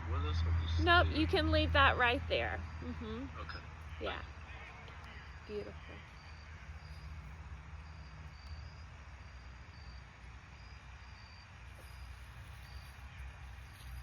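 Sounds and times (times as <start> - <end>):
low background rumble: 0.0 - 14.0
faint cricket chirping: 0.1 - 14.0.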